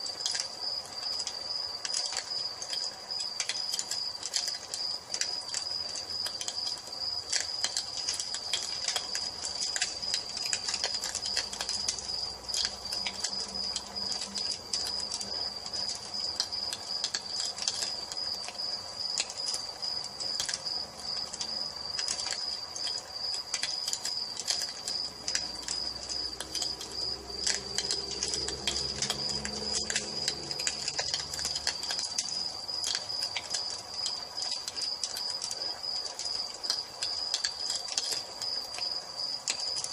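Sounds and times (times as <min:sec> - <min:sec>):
cricket trilling: 0:00.0 - 0:39.9
wood fire crackling: 0:00.0 - 0:39.9.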